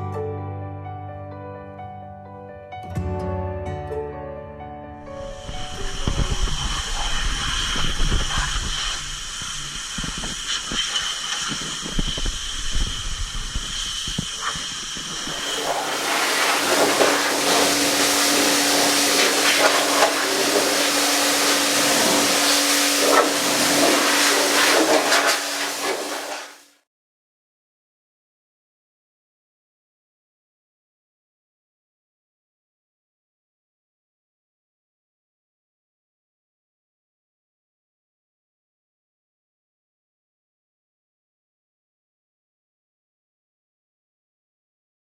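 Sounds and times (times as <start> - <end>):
steady low hum: 5.1 - 26.1
spray nozzle hissing: 5.1 - 26.6.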